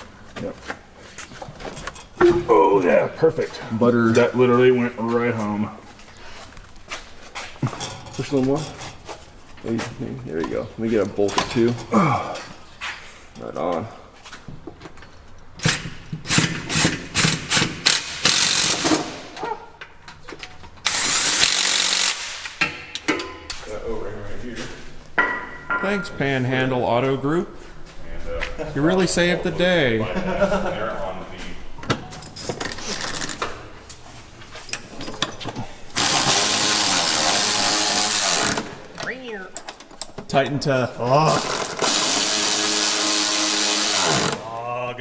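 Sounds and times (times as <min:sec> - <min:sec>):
power tool running in bolts: 0:17.9 - 0:19.1, 0:20.8 - 0:22.2, 0:36.0 - 0:38.7, 0:41.3 - 0:44.4
tools and parts clicking: 0:31.9 - 0:33.5, 0:41.3 - 0:42.5.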